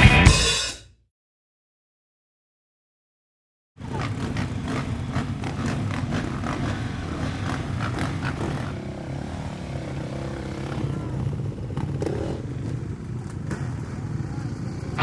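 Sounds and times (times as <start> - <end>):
motorcycle engines revving: 3.8 - 15.0.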